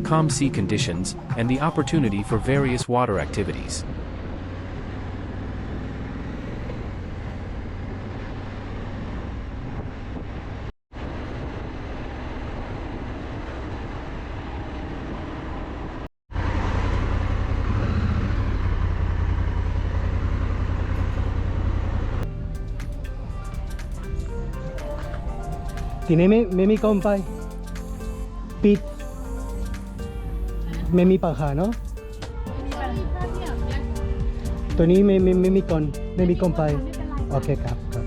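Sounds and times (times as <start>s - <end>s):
tyres on road: 0.0s - 29.9s
motorcycle engine rumble: 3.6s - 38.0s
wind noise: 9.0s - 16.0s.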